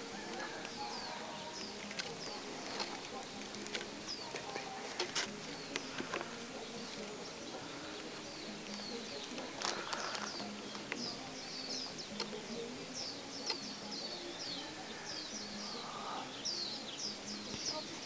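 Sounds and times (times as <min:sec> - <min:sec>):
bird chirping: 0:00.0 - 0:18.0
sharp clicks: 0:07.9 - 0:12.5, 0:13.3 - 0:14.0.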